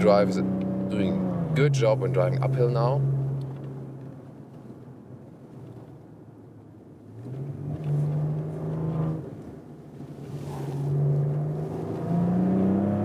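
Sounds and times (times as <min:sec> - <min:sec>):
car engine accelerating: 0:00.0 - 0:04.4, 0:07.0 - 0:13.0.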